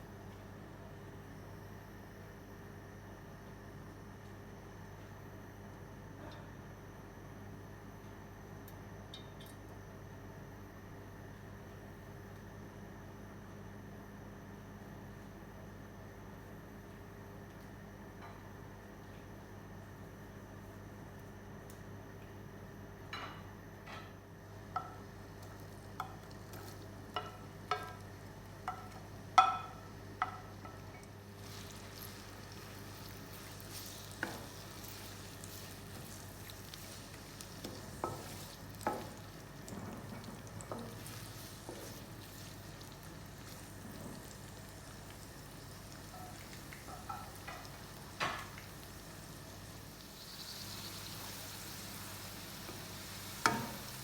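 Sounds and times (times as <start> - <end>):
food sizzling: 25.4 - 54.0.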